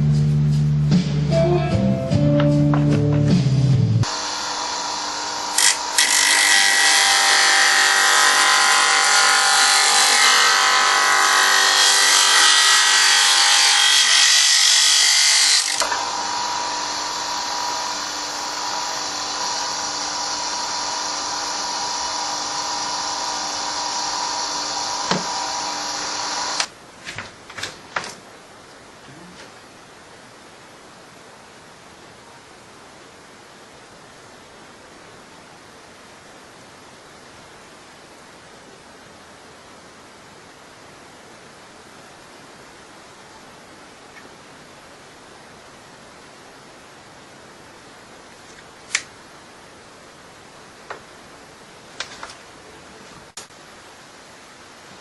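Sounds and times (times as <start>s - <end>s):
electric sander buzzing whine: 4.0s - 8.5s, 15.6s - 26.7s.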